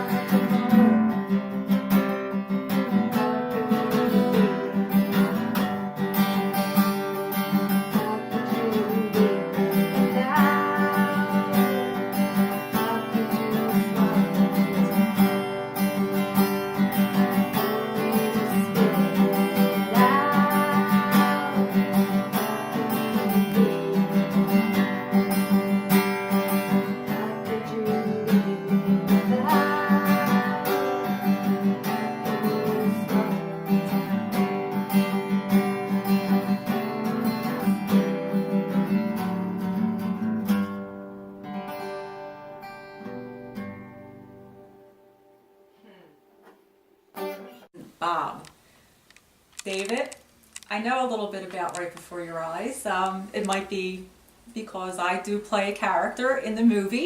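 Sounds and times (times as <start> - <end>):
acoustic guitar strumming: 0.0 - 48.4.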